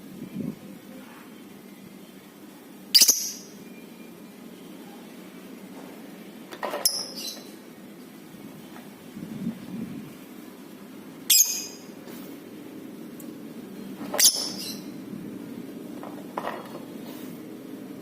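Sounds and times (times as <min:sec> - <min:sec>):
low steady background noise: 0:00.0 - 0:18.0
lovebird shrill calls: 0:02.9 - 0:03.6, 0:06.9 - 0:07.5, 0:11.3 - 0:11.9, 0:14.2 - 0:15.0.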